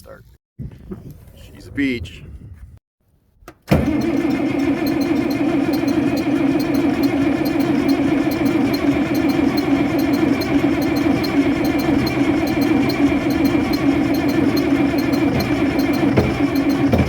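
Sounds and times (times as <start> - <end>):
diesel engine cranking by starter: 3.7 - 17.0.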